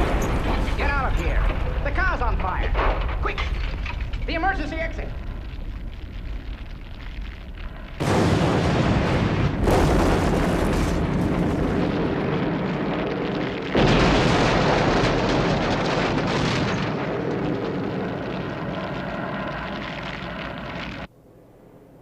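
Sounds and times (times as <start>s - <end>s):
car explosion blasts: 0.0s - 4.3s, 7.9s - 21.1s
long rumble: 5.1s - 21.1s.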